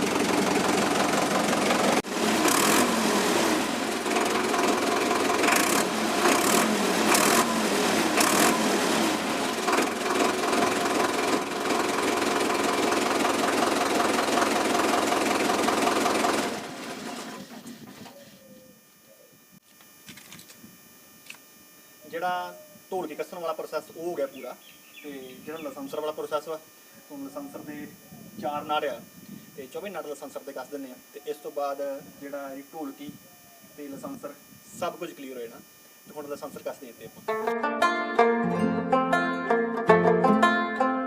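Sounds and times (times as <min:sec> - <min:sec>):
tractor diesel engine clattering: 0:00.0 - 0:02.1, 0:09.5 - 0:17.4.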